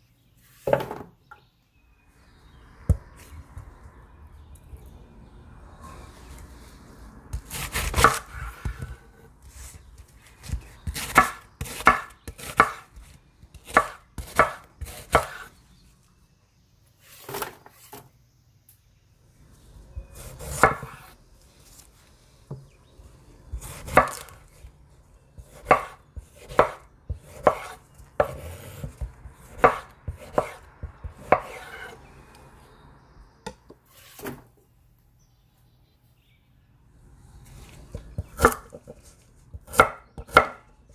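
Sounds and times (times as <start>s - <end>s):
knife chopping on cutting board: 7.4s - 9.0s, 10.4s - 12.9s, 13.6s - 15.5s, 20.1s - 21.0s, 23.6s - 24.4s, 25.4s - 32.0s, 37.9s - 38.9s, 39.5s - 40.6s.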